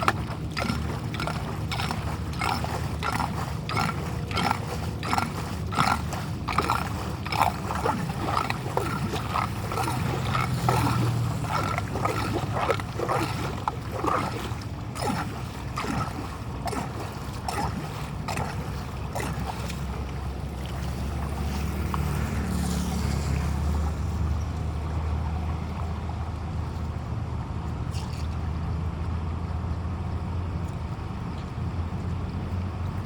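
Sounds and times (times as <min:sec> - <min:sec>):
floodwater rushing: 0:00.0 - 0:25.8.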